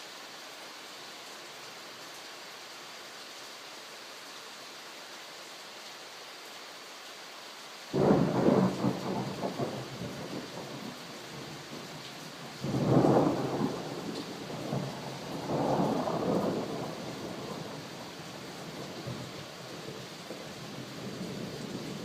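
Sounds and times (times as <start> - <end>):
steady rain falling: 0.0 - 22.0
thunder rumbling: 8.0 - 11.5, 12.6 - 18.0.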